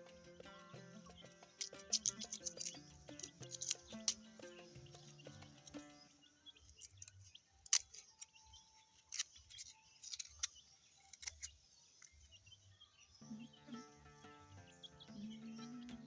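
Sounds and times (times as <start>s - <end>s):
knife scraping and peeling roots: 1.6s - 4.3s, 6.8s - 12.2s.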